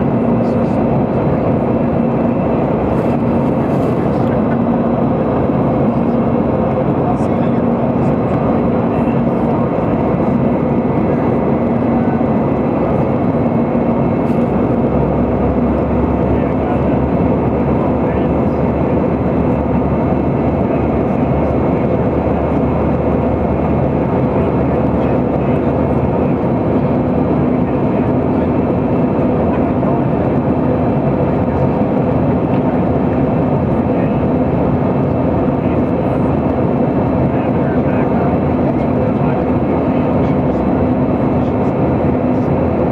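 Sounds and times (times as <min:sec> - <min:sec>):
airplane cabin engine hum: 0:00.0 - 0:42.9.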